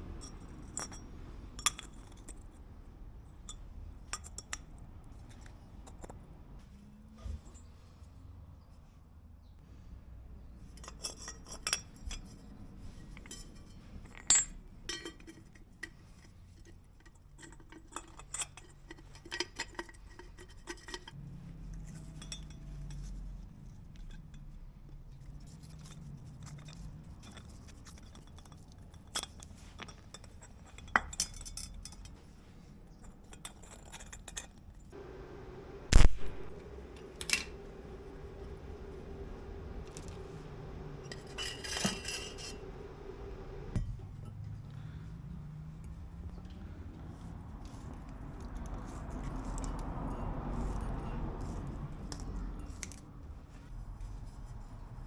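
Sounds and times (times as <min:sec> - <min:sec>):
metal tools clinking: 0:10.7 - 0:23.2, 0:33.1 - 0:45.0
low steady hum: 0:34.9 - 0:55.0.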